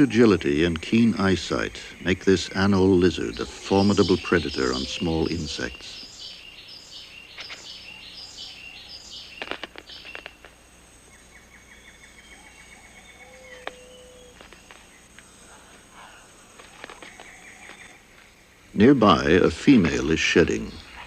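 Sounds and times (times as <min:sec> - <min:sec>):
birds calling: 0:00.0 - 0:21.0
insects: 0:00.0 - 0:21.0
high chirps: 0:00.9 - 0:10.5.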